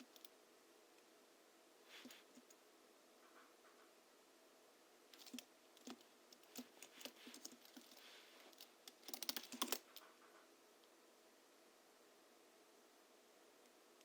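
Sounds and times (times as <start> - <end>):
keyboard typing: 8.9 - 9.9.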